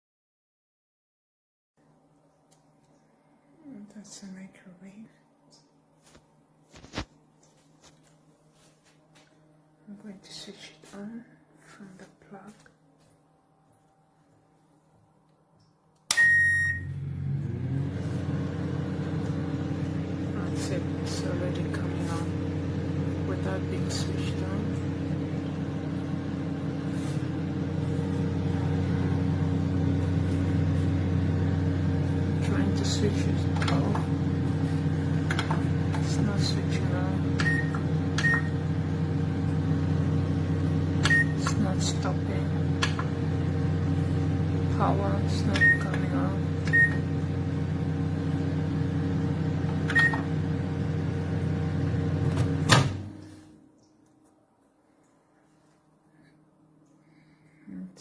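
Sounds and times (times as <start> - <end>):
microwave humming: 12.8 - 54.6
short beep: 16.1 - 17.0.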